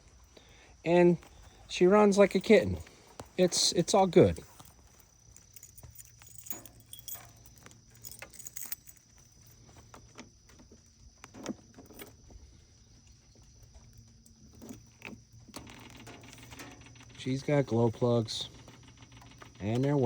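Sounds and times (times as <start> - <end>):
keys jingling: 1.2 - 9.9, 13.9 - 17.2.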